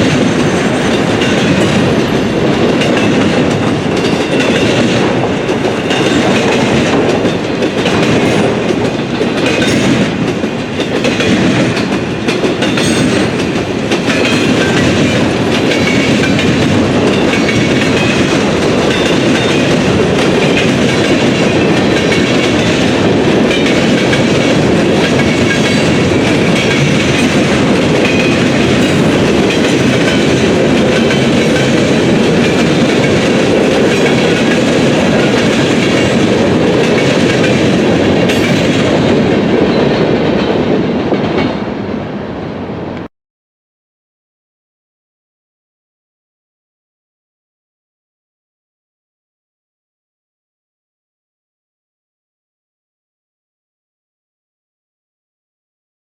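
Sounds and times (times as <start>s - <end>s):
train wheels clattering on rails: 0.0s - 42.0s.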